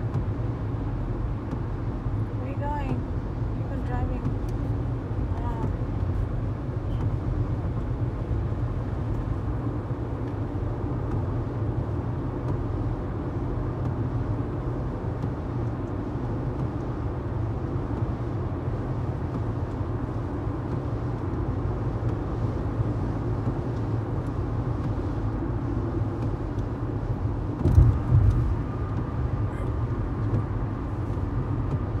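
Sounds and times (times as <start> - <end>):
vehicle engine rumble: 0.0 - 32.0
loud thump: 27.6 - 28.5.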